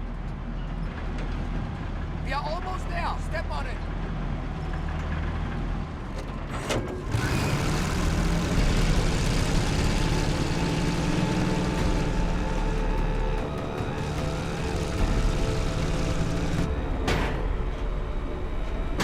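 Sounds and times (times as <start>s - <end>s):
truck engine accelerating: 3.9s - 19.0s.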